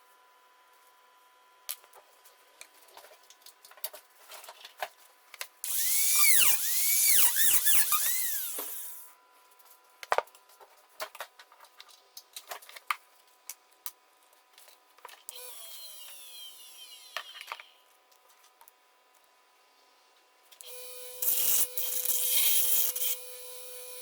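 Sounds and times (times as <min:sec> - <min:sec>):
small power tool running: 0:05.6 - 0:09.1, 0:15.3 - 0:17.8, 0:20.6 - 0:24.0.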